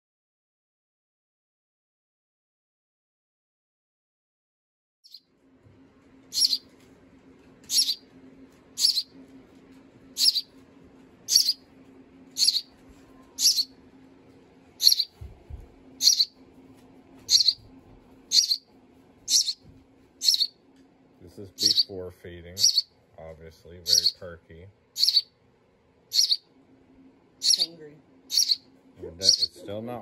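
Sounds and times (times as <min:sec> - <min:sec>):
faint low hum: 0:05.1 - 0:30.0
baby bird begging chirps: 0:06.3 - 0:06.7, 0:07.6 - 0:08.0, 0:08.8 - 0:09.1, 0:10.1 - 0:10.5, 0:11.3 - 0:11.6, 0:12.4 - 0:12.7, 0:13.4 - 0:13.8, 0:14.8 - 0:15.2, 0:16.0 - 0:16.4, 0:17.3 - 0:17.7, 0:18.3 - 0:18.7, 0:19.3 - 0:19.6, 0:20.2 - 0:20.6, 0:21.5 - 0:22.0, 0:22.6 - 0:22.9, 0:23.8 - 0:24.2, 0:25.0 - 0:25.3, 0:26.1 - 0:26.5, 0:27.4 - 0:27.7, 0:28.3 - 0:29.6.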